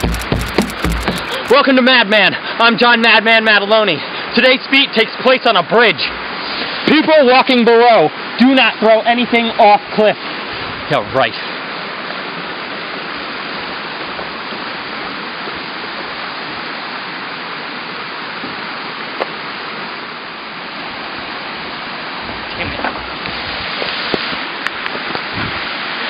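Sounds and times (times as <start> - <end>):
sharp click: 0.0 - 1.6.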